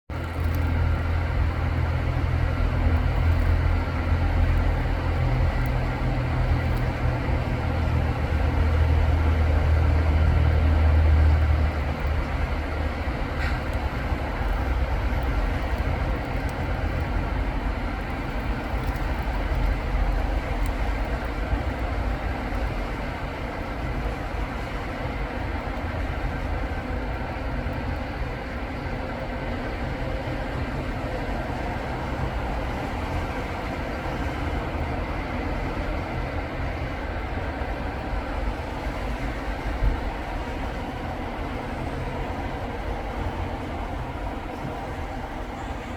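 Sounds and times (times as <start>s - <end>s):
heavy vehicle engine rumble: 0.1s - 45.9s
tyres hissing on wet road: 0.2s - 45.9s.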